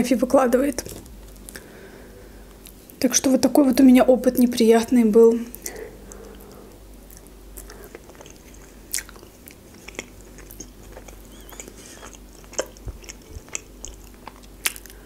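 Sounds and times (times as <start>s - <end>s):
chewing mussels: 5.5s - 15.0s.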